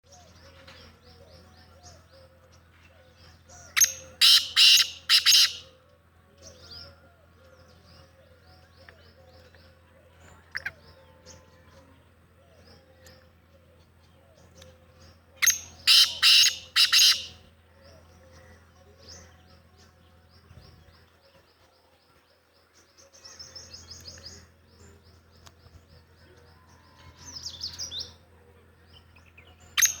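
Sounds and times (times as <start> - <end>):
francolin harsh call: 3.8 - 5.7, 15.4 - 17.4
rapid runs of bird notes: 3.8 - 5.7, 15.4 - 17.6.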